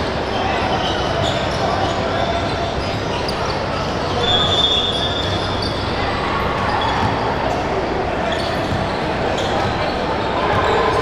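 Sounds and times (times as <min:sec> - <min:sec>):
hum of crowd and players: 0:00.0 - 0:11.0
basketball bouncing on court: 0:06.9 - 0:07.3.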